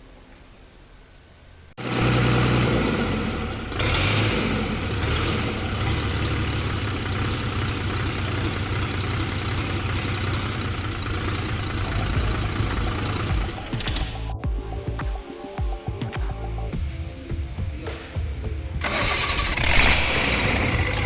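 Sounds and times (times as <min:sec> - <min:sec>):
diesel bus engine running: 0:01.8 - 0:14.9, 0:18.8 - 0:21.0.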